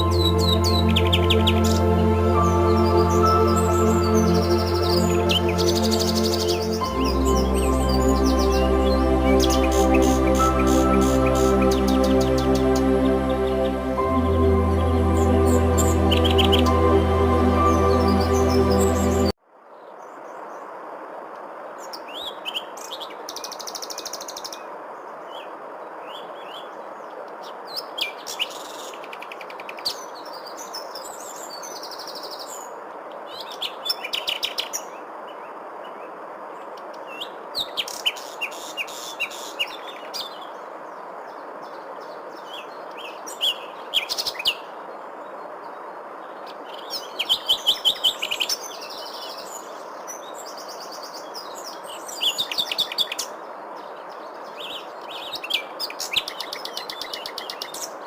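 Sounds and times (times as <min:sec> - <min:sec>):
songbirds chirping and trilling: 0:00.0 - 0:19.3
steady background hiss: 0:00.0 - 0:58.0.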